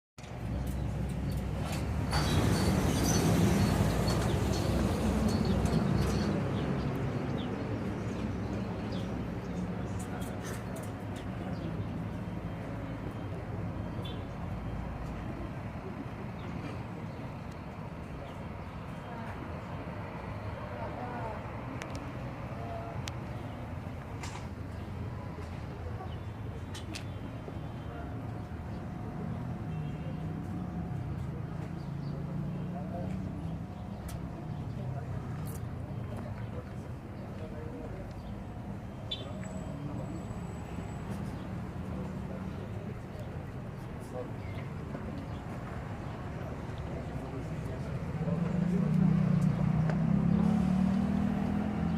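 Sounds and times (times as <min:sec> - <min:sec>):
diesel engine rumbling: 0:00.3 - 0:51.9
bird chirps: 0:39.1 - 0:40.6.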